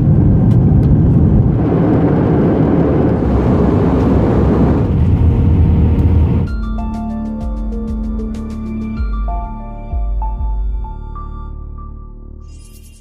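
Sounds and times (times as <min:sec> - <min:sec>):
jet engines rumbling: 0:00.0 - 0:06.5.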